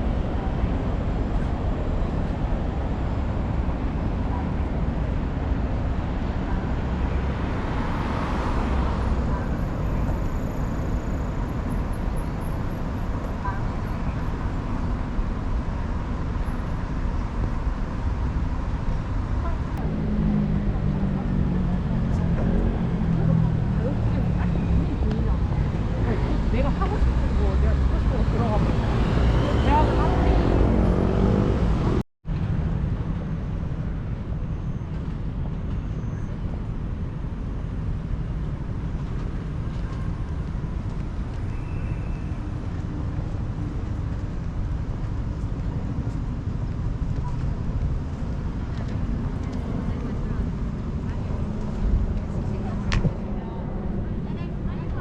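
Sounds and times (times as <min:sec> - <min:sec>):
low rumble of city traffic: 0:00.0 - 0:55.0
voices: 0:19.4 - 0:31.6, 0:48.6 - 0:55.0.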